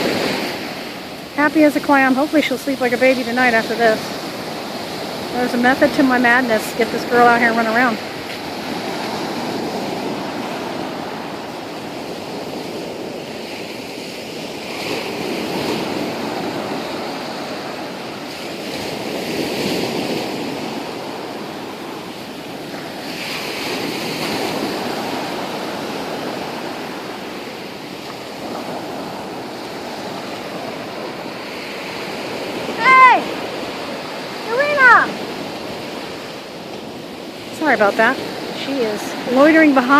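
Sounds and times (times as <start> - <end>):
ocean waves breaking on beach: 0.0 - 39.9
person shouting a call: 32.7 - 33.4, 34.4 - 35.2.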